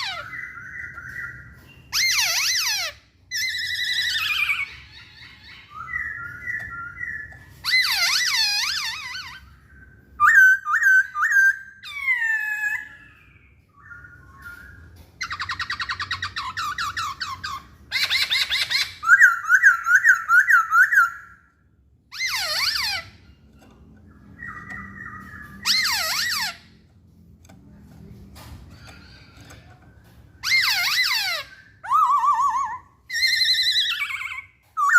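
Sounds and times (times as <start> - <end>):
bird singing whistled phrases: 30.4 - 34.9.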